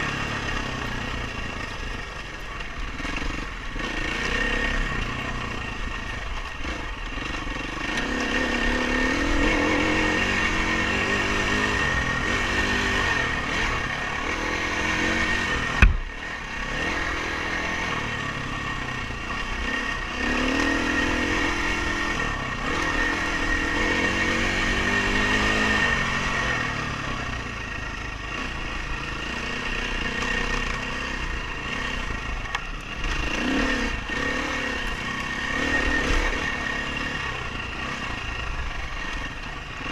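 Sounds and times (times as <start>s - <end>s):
dirt bike engine revving: 0.0s - 39.9s
sharp knock: 15.8s - 16.1s.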